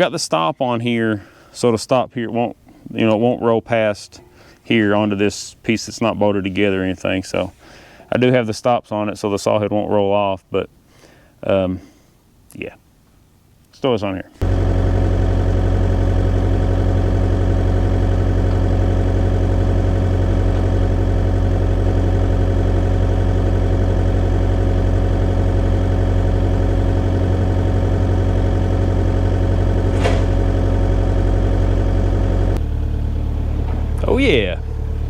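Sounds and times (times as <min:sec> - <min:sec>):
machine engine running steadily: 0:14.4 - 0:35.0.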